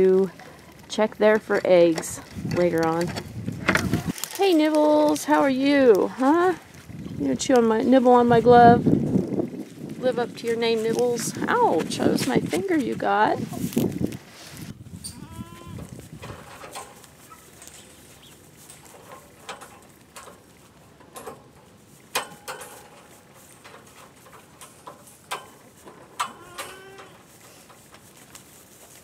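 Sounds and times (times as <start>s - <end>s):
animals knocking and rustling: 0.0s - 29.0s
goats bleating: 15.2s - 15.9s, 26.3s - 27.3s.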